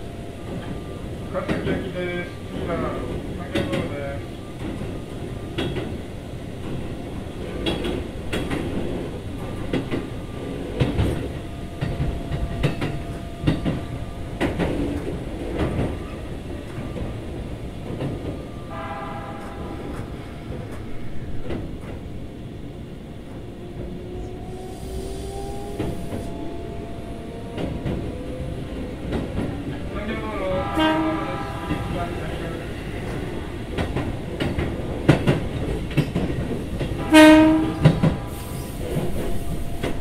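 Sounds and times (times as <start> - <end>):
train wheels rumbling on track: 0.0 - 40.0.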